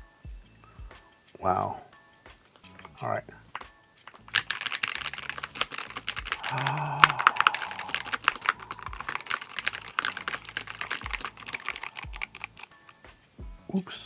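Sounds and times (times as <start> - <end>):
fast keyboard typing: 2.7 - 13.2.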